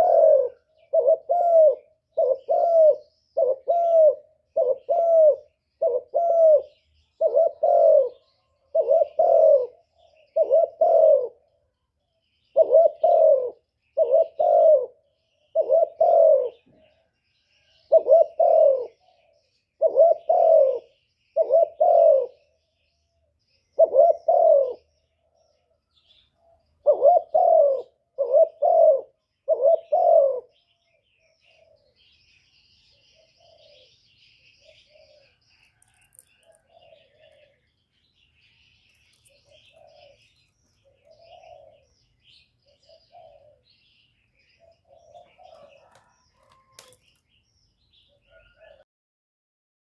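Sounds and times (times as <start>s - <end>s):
dove cooing: 0.0s - 11.7s, 12.5s - 22.6s, 23.8s - 32.2s, 32.8s - 37.7s, 38.4s - 47.0s, 48.0s - 48.8s
small birds chirping: 0.0s - 48.8s.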